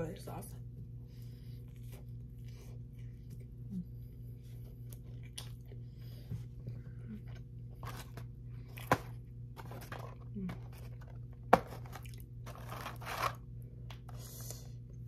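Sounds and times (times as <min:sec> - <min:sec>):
low hum: 0:00.0 - 0:15.0
crunchy chewing: 0:01.6 - 0:11.0.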